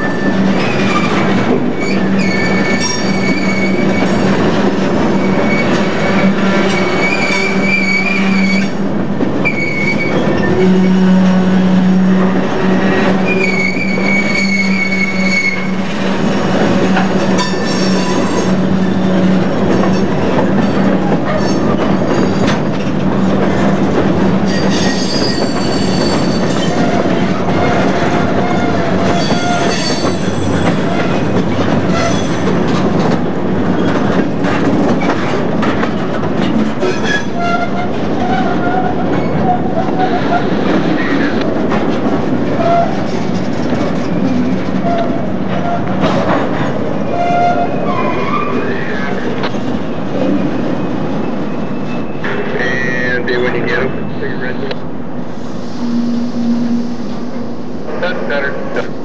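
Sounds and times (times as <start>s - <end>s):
wheel flanges squealing: 0.0s - 4.4s, 5.0s - 8.8s, 9.4s - 15.8s, 24.4s - 32.5s, 36.0s - 54.3s
train wheels rumbling over rail: 0.0s - 59.0s.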